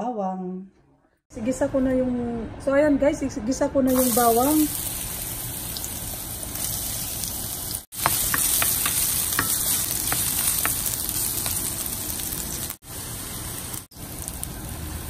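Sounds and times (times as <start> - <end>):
food sizzling in hot oil: 3.9 - 15.0.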